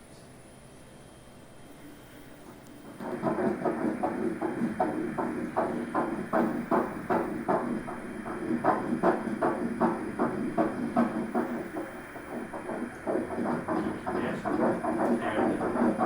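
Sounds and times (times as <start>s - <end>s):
doppler heartbeat whooshing pulses: 2.8s - 16.0s.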